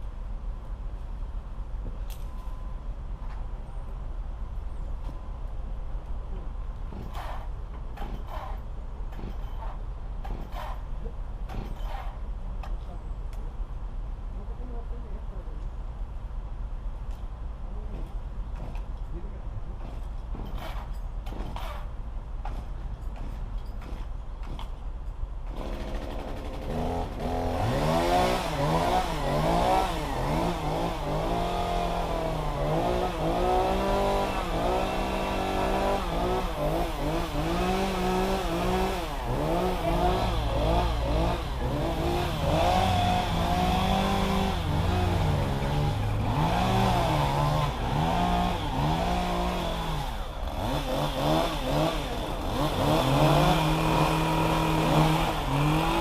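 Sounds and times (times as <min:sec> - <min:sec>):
engine revving: 0:25.5 - 0:56.0.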